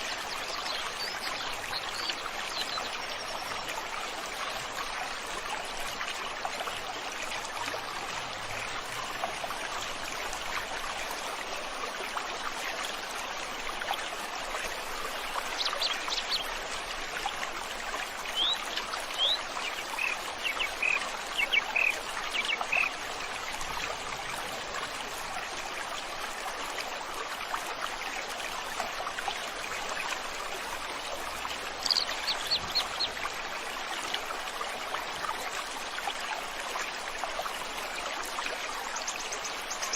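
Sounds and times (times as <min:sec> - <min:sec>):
river stream flowing: 0:00.0 - 0:39.9
high bird chirps: 0:31.8 - 0:33.1.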